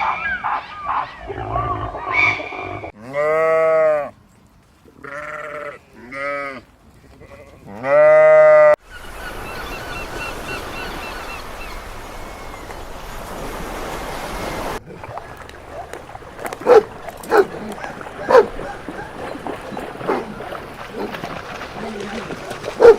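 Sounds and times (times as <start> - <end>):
livestock bleating: 3.0 - 4.1, 5.0 - 8.8.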